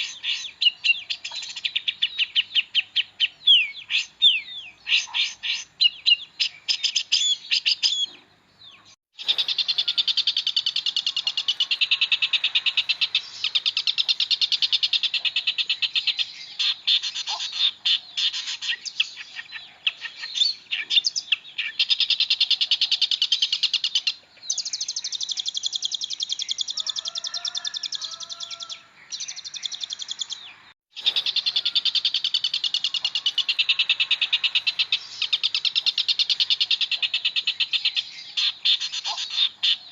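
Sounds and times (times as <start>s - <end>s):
bird singing rattling trills: 8.8s - 39.9s.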